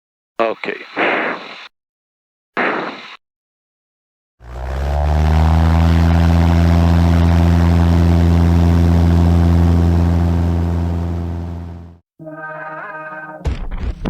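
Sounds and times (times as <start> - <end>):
propeller plane engine droning: 4.4 - 12.0.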